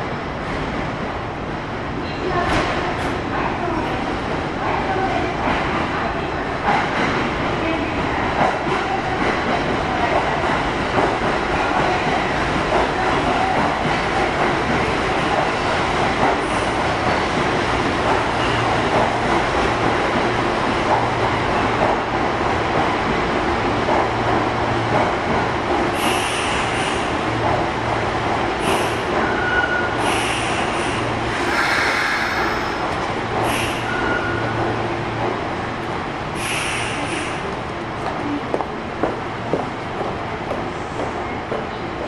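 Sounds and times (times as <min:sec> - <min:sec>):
train equipment hum and hiss: 0:25.7 - 0:27.6, 0:28.4 - 0:29.3, 0:29.9 - 0:42.0.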